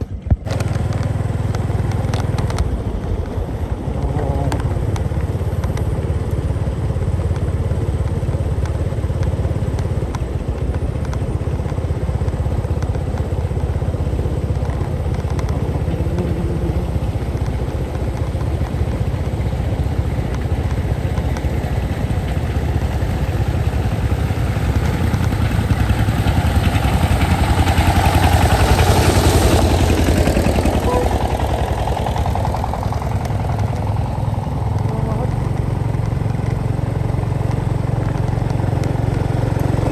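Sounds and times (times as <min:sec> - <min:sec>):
motorcycle engine running: 0:00.0 - 0:39.9
road noise: 0:00.0 - 0:39.9.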